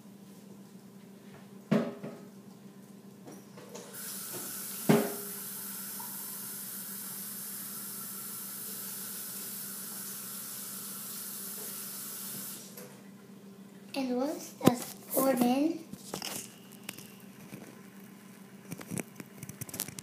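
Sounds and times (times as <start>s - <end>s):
faucet water filling cup: 3.9s - 12.8s.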